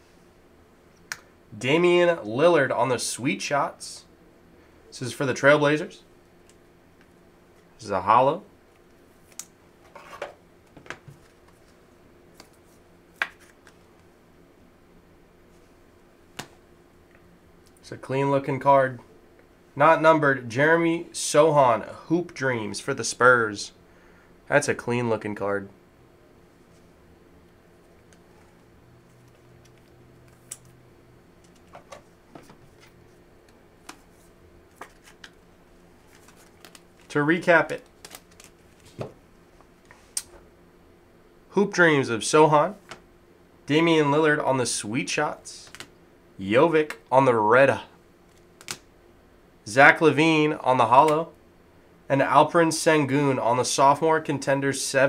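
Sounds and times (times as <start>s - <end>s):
faint steady hum: 0.0s - 55.0s
cards clicking and tapping on table: 13.2s - 13.5s.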